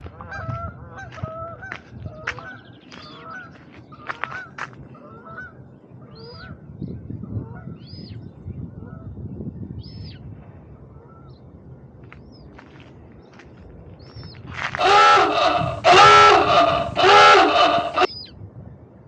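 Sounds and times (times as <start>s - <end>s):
birds honking calls: 0.2s - 5.6s, 14.7s - 18.3s.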